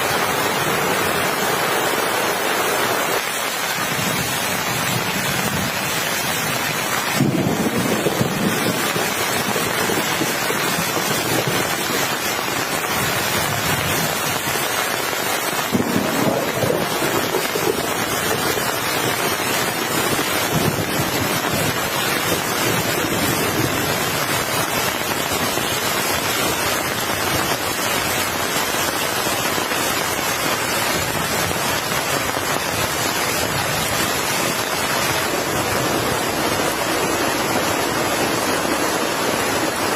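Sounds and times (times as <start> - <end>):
heavy rain hissing: 0.0 - 39.9
low thunder rolls: 3.9 - 12.0, 15.7 - 24.4.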